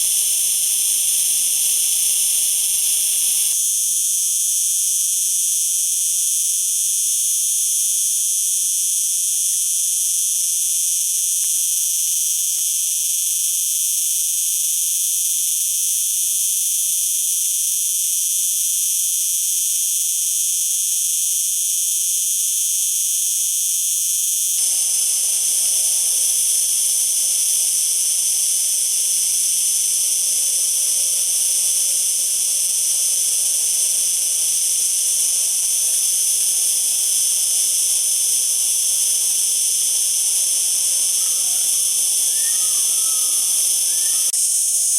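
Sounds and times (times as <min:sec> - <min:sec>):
cicada buzzing: 0:00.0 - 0:03.7, 0:24.2 - 0:44.9.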